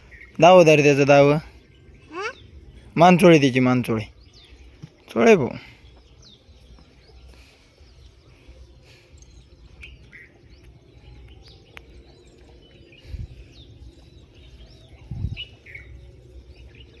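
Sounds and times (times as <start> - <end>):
small birds chirping: 0.0 - 17.0
low rumble: 9.4 - 17.0
dull low thumps: 9.5 - 16.9.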